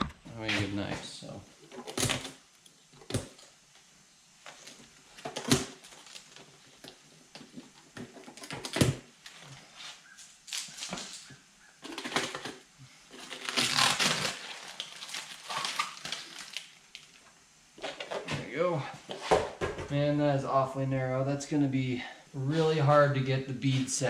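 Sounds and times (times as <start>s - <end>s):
plastic crinkling and tearing: 4.5s - 17.2s
knife slitting plastic wrapping: 13.2s - 16.8s.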